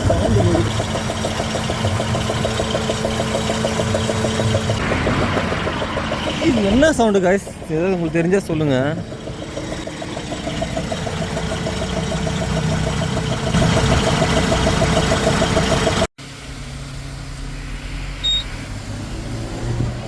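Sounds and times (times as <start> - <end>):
lorry engine running: 0.0 - 17.2
short high beep: 18.2 - 18.5.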